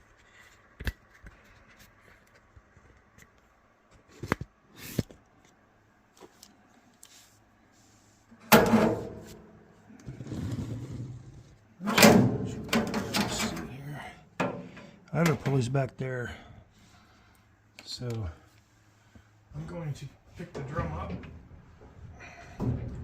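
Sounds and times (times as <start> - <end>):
dryer drum scraping rumble: 10.1 - 13.8.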